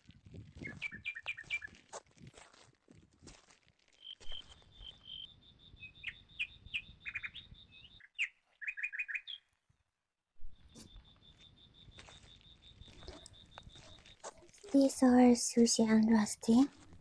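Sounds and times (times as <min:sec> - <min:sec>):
birds singing: 0:00.6 - 0:01.8, 0:04.0 - 0:09.5
bird chirps sliding downward: 0:04.0 - 0:09.5.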